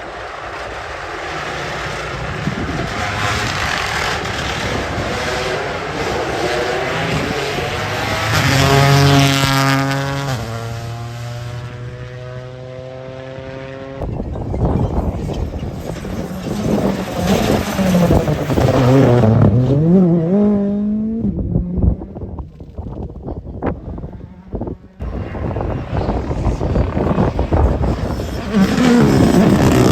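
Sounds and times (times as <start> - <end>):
rally car engine at speed: 0.0 - 29.9
second car engine revving: 0.6 - 14.0, 24.3 - 29.9.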